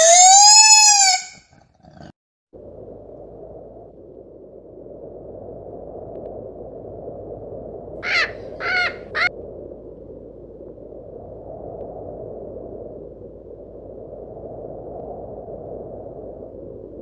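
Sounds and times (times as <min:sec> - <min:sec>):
gannet calls: 0:08.0 - 0:09.3.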